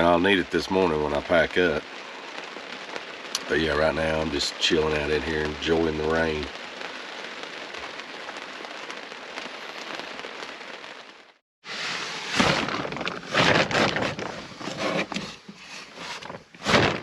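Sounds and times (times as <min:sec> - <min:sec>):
rain falling on truck: 0:00.0 - 0:11.4
crackling and rushing noise: 0:00.0 - 0:17.0.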